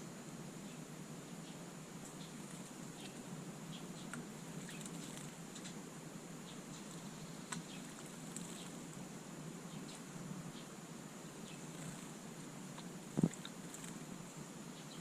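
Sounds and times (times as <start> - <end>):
steady hiss: 0.0 - 15.0
small birds chirping: 0.6 - 15.0
small ticks: 4.0 - 5.8, 6.5 - 8.9, 12.8 - 14.0.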